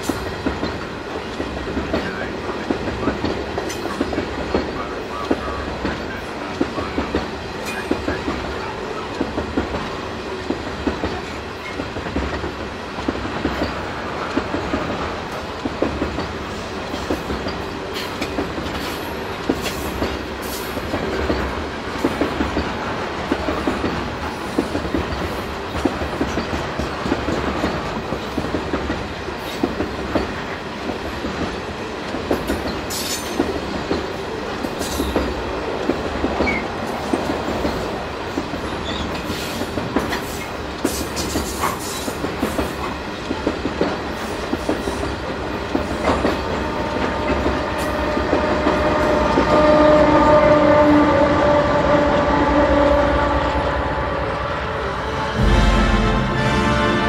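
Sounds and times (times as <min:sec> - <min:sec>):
diesel locomotive engine drone: 0:45.8 - 0:57.0.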